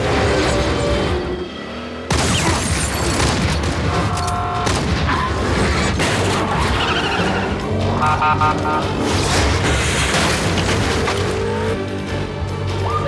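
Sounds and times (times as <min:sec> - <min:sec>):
film music: 0:00.0 - 0:13.0
dense crashing noise: 0:09.1 - 0:11.4.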